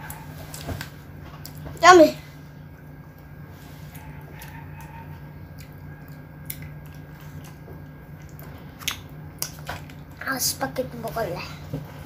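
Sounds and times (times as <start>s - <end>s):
child chewing food: 0.0s - 1.8s, 2.4s - 10.3s
steady low hum: 0.0s - 12.0s.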